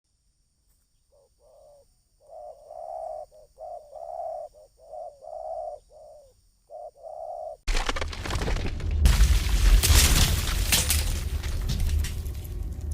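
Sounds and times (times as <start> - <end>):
dove cooing: 1.1 - 7.6.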